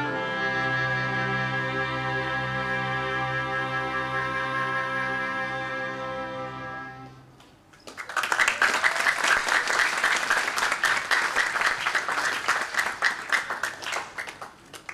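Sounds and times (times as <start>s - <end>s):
audience applause: 7.8s - 14.9s.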